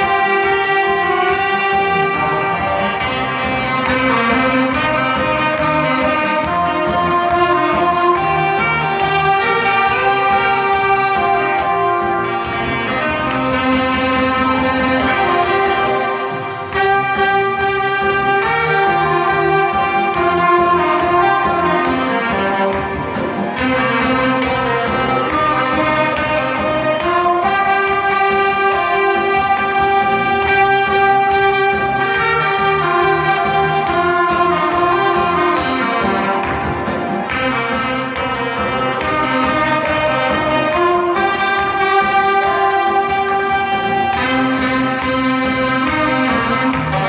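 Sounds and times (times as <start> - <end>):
saxophone ensemble playing: 0.0 - 47.0
steady beat: 0.0 - 47.0.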